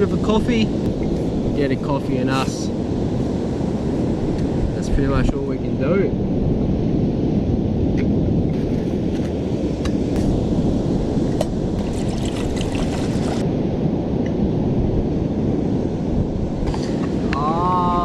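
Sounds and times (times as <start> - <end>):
surf rumbling: 0.0 - 18.0
wind buffeting microphone: 0.0 - 18.0.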